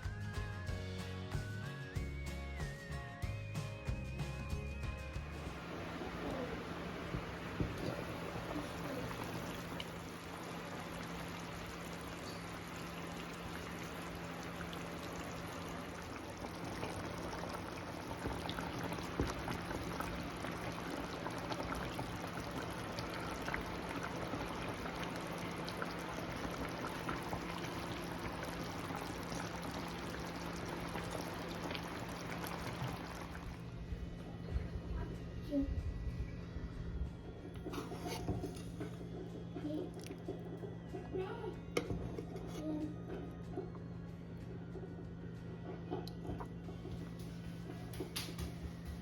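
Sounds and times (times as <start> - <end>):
low hum: 5.2 - 49.0
chicken sizzling in a pot: 5.3 - 33.6.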